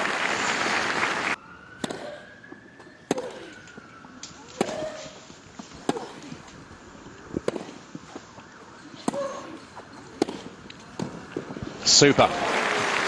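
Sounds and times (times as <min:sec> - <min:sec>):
tennis racket hitting ball: 0:01.8 - 0:02.2, 0:03.1 - 0:03.5, 0:04.6 - 0:05.0, 0:05.8 - 0:06.4, 0:07.4 - 0:07.8, 0:09.0 - 0:11.2.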